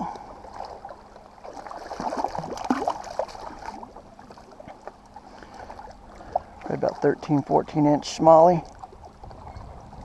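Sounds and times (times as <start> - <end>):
water splashing against kayak: 0.0 - 10.0.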